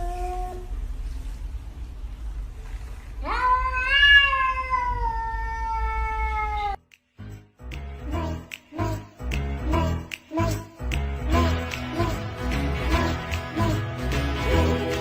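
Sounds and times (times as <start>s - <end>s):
cat meowing: 3.2s - 6.8s.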